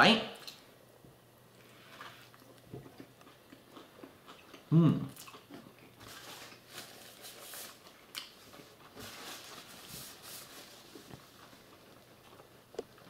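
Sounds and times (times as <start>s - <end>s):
faint chewing: 1.5s - 9.5s, 10.8s - 13.0s
soft rustles: 6.0s - 12.0s.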